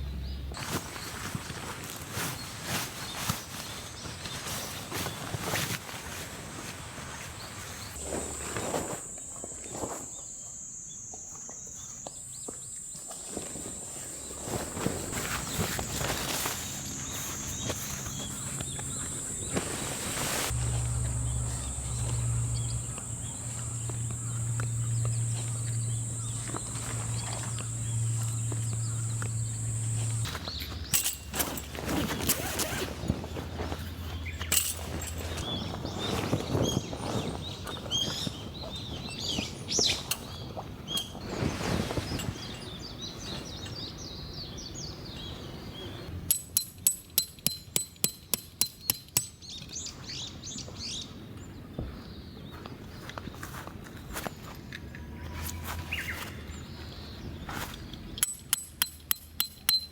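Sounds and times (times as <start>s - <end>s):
slow footsteps on ground: 0.0s - 10.6s, 12.0s - 44.2s, 49.8s - 58.2s
rustling: 0.5s - 10.5s, 13.0s - 43.7s
high-pitched insect trill: 8.0s - 32.8s
low hum: 14.4s - 36.1s
steady high tone: 20.3s - 30.3s.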